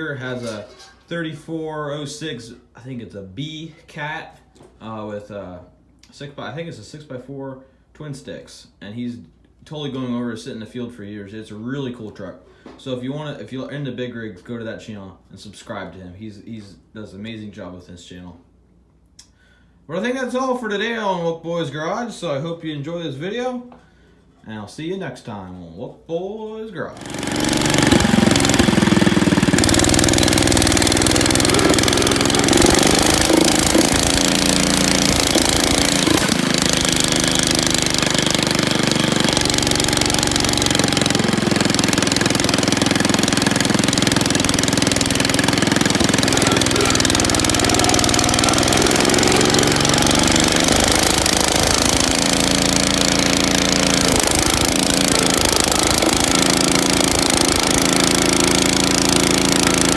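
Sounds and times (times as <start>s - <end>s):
car engine idling: 27.0s - 59.9s.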